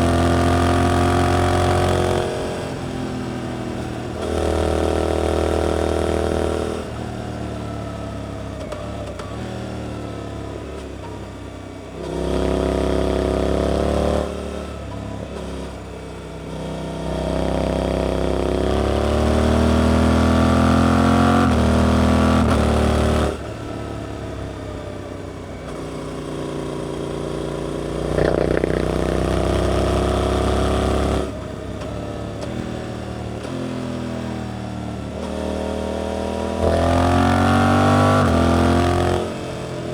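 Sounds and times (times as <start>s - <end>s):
motorcycle engine accelerating: 27.5s - 32.8s.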